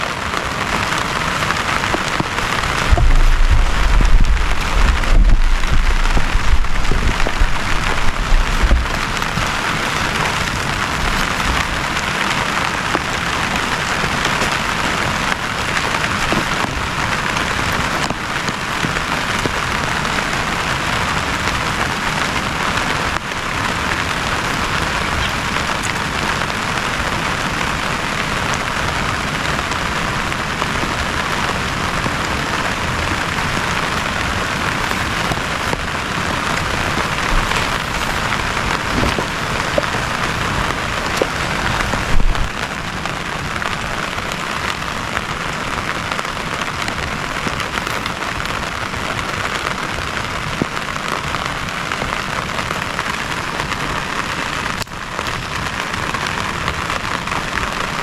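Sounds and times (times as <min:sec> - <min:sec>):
heavy rain falling: 0:00.0 - 0:58.0
deep low rumble: 0:02.4 - 0:11.8, 0:32.8 - 0:42.7.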